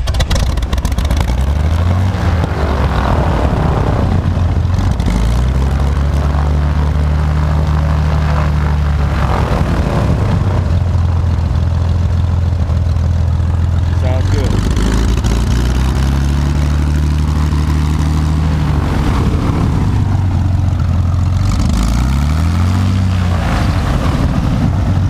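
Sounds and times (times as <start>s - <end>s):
aircraft engine and propeller running: 0.0s - 25.0s.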